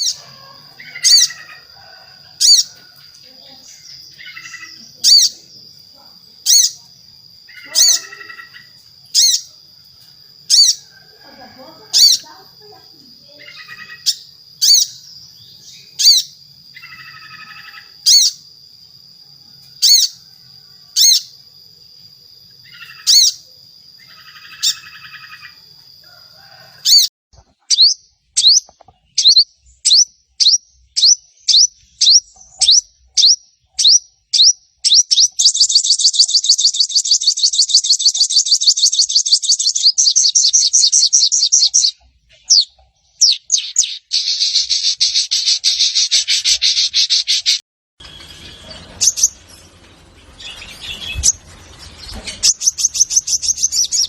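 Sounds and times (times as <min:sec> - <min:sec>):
fast bird trill: 0:00.0 - 0:01.7, 0:02.4 - 0:02.7, 0:13.4 - 0:18.4, 0:19.8 - 0:20.2, 0:22.7 - 0:23.4, 0:24.0 - 0:25.6, 0:27.7 - 0:49.6, 0:50.3 - 0:54.0
buzzy bird chatter: 0:00.0 - 0:06.8, 0:07.4 - 0:09.6, 0:12.0 - 0:18.5, 0:24.0 - 0:25.6, 0:26.9 - 0:54.0
bird calls: 0:00.0 - 0:09.6, 0:10.4 - 0:18.5, 0:19.8 - 0:21.4, 0:22.6 - 0:25.6, 0:26.4 - 0:54.0.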